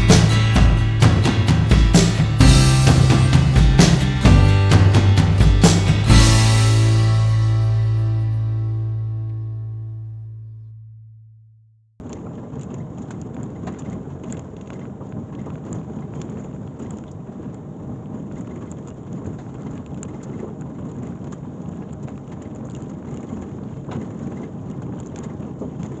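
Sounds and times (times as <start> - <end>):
heavy rain: 0.0 - 7.7
deep rumbling undertone: 0.0 - 10.7.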